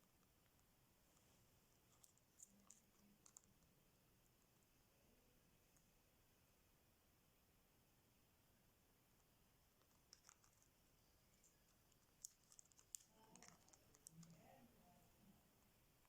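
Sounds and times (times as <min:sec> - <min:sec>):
parrot beak cracking nuts: 0:10.1 - 0:10.6, 0:12.0 - 0:14.3.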